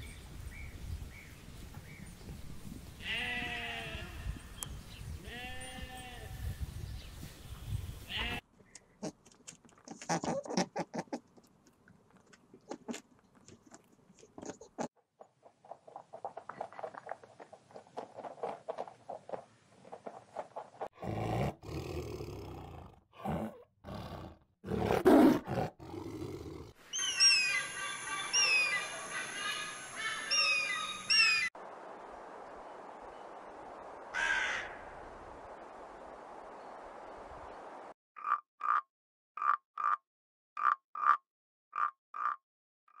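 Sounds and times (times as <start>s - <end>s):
tiger growling and roaring: 21.0s - 26.8s
small bird chirping: 26.9s - 31.5s
rook cawing: 34.1s - 35.0s.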